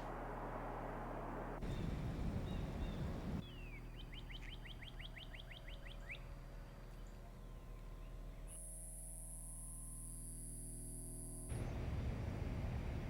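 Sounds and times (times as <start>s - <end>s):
low rumble: 0.0s - 3.4s
steady low hum: 0.0s - 13.0s
songbird singing: 1.6s - 8.8s.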